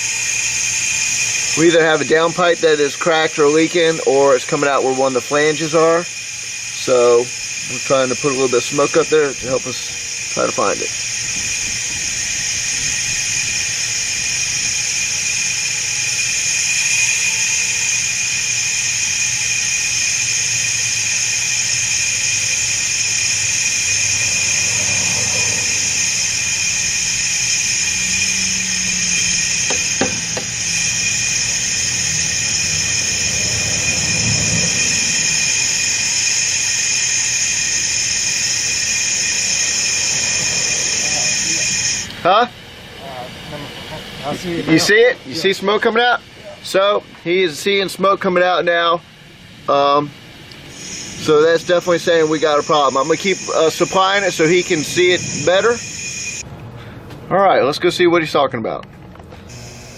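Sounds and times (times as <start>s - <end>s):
compressed air hissing: 0.0s - 57.1s, 59.4s - 59.9s
low rumble: 23.3s - 36.0s.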